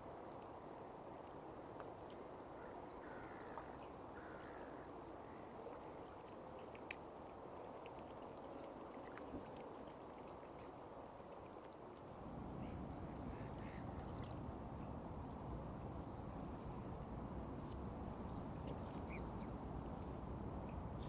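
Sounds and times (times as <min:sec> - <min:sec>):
lake water lapping: 0:02.0 - 0:17.0
faint bird calls: 0:02.6 - 0:05.6, 0:12.6 - 0:14.4, 0:18.7 - 0:19.6.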